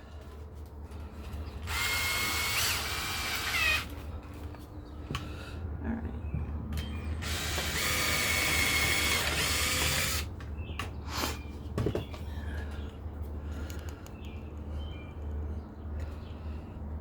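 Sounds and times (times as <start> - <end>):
power drill boring into wood: 1.6 - 3.9, 7.2 - 10.3.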